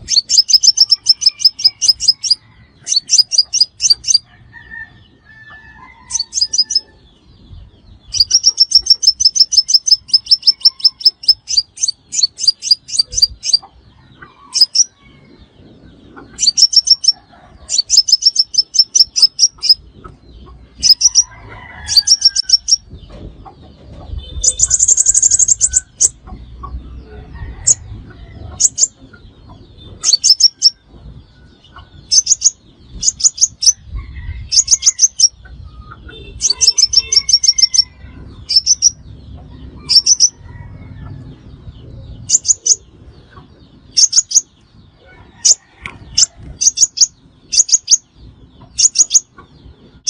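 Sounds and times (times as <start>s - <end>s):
sunbird calling: 0.0s - 4.8s, 5.9s - 7.0s, 8.1s - 15.0s, 16.1s - 19.8s, 24.1s - 27.8s, 31.8s - 33.8s, 34.5s - 39.0s, 39.8s - 40.4s, 43.9s - 44.6s, 45.5s - 48.1s, 48.7s - 49.4s.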